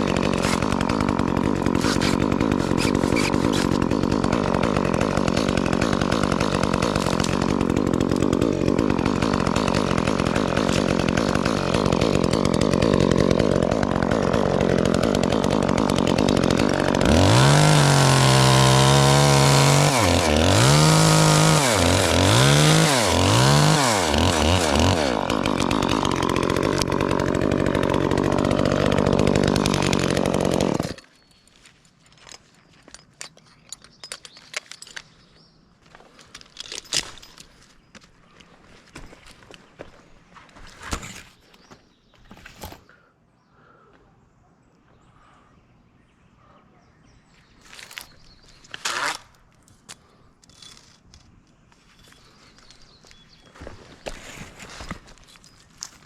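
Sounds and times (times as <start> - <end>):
chainsaw engine revving: 0.0 - 31.1.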